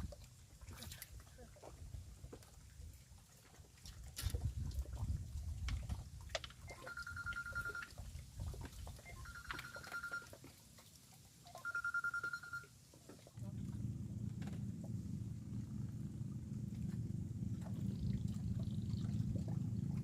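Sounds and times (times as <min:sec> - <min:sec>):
electronic phone-like tone: 0:06.7 - 0:08.0, 0:09.0 - 0:10.4, 0:11.5 - 0:12.7
low rumble: 0:13.4 - 0:20.0.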